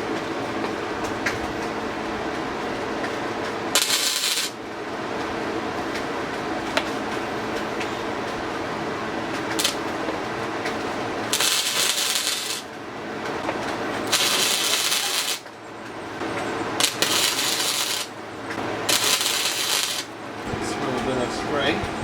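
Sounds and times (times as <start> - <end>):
steady welder hum: 0.0 - 22.0
electric welder crackling: 3.0 - 4.7, 9.3 - 15.6, 16.3 - 20.5.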